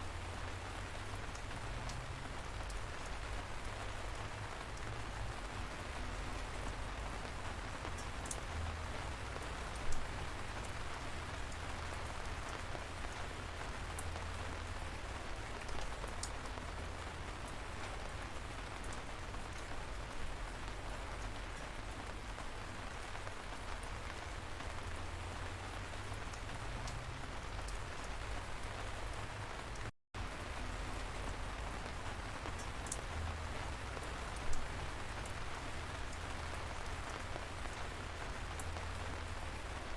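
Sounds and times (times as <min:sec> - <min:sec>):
light rain hiss: 0:00.0 - 0:39.9.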